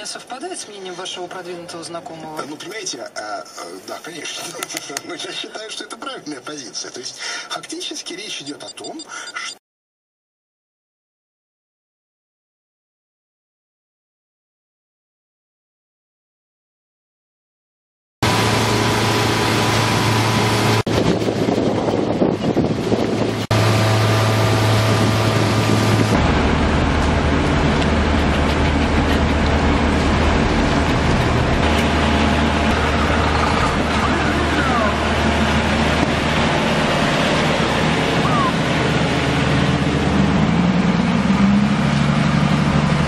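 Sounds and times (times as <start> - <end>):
car engine and road noise: 18.2 - 43.0.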